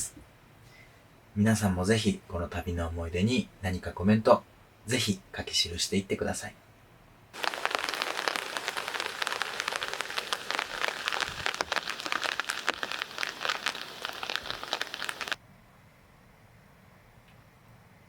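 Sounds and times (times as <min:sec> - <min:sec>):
heavy rain on a hard surface: 0:07.4 - 0:15.4.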